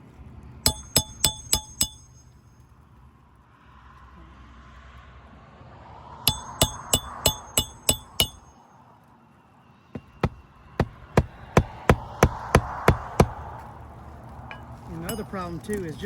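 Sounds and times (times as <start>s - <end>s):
hammer driving nails: 0.7s - 2.2s, 6.3s - 8.5s, 10.0s - 13.4s.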